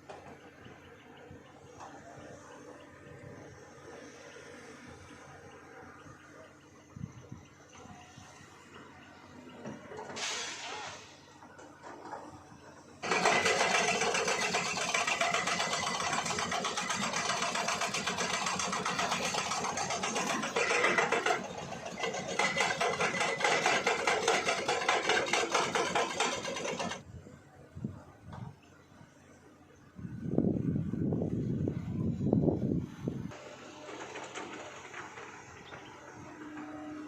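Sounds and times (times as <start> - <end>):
machine clattering: 13.0 - 27.0, 33.4 - 36.4.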